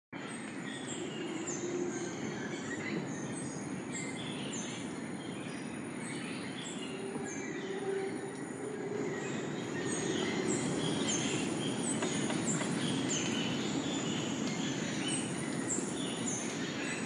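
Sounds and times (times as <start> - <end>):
birds calling: 6.4 - 17.0.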